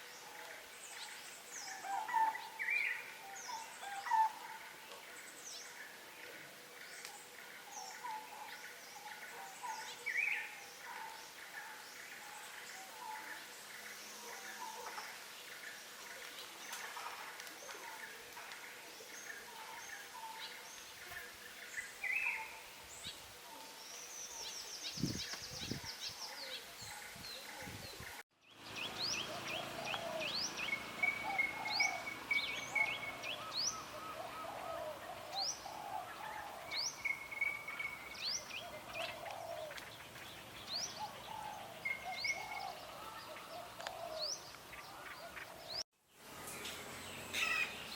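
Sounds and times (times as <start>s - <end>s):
birds chirping and whistling: 28.5s - 44.4s
low warbling bird calls: 28.6s - 45.8s.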